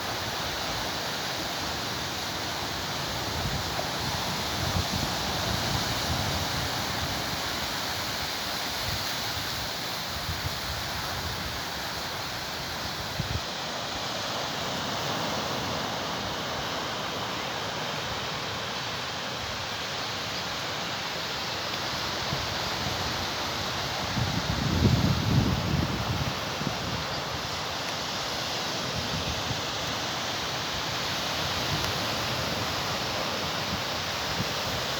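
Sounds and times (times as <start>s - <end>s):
sea surf washing on shore: 0.0s - 34.9s
wind buffeting microphone: 23.8s - 27.1s.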